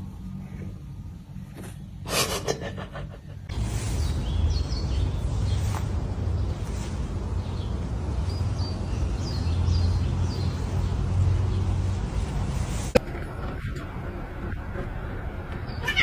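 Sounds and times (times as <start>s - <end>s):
steady low rumble: 0.0s - 16.0s
birds chirping: 3.5s - 12.9s.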